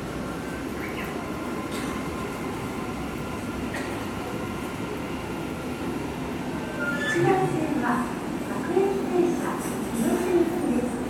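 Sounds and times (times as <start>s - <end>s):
electric train slowing to a stop: 0.0s - 7.6s.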